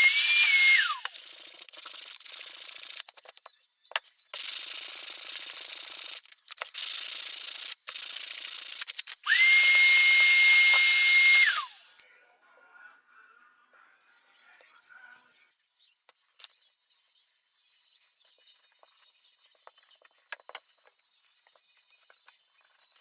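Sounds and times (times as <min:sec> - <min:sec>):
electric power tool whining: 0:00.0 - 0:03.0, 0:06.8 - 0:12.0.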